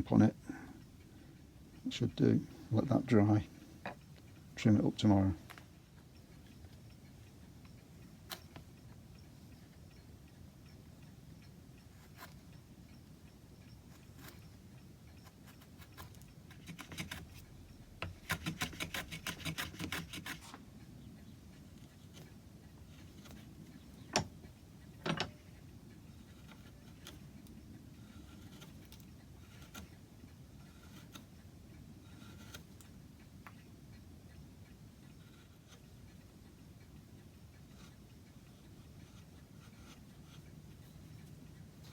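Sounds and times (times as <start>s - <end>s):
tools handled on workbench: 25.0s - 25.4s.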